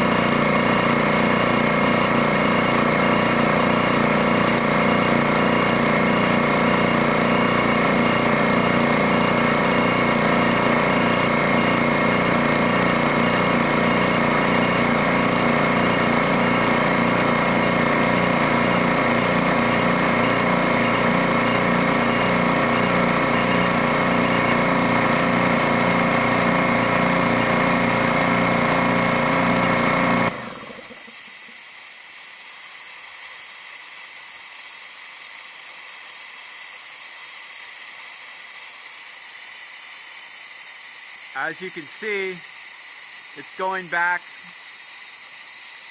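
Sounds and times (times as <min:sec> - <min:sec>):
air compressor running: 0:00.0 - 0:45.9.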